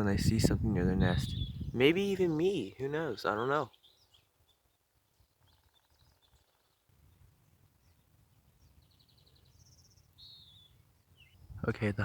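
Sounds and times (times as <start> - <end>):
faint birdsong trills: 0.9 - 12.0
down-slurred bird chirp: 1.0 - 11.9.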